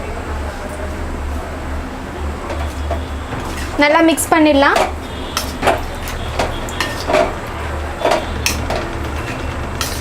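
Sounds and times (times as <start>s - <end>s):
spoon scraping a pan: 2.5s - 3.9s, 4.7s - 10.0s.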